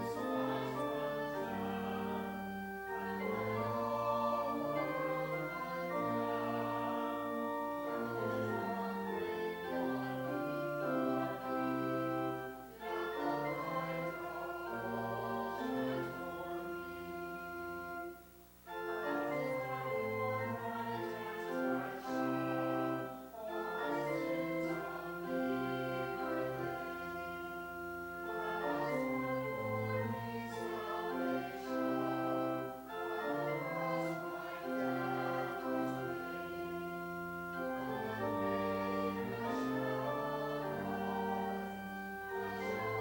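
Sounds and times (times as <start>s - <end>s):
church organ sustained chords: 0.0s - 43.0s.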